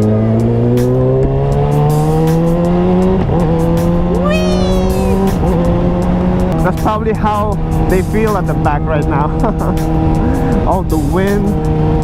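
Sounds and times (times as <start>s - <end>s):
motorcycle engine accelerating: 5.0s - 12.0s.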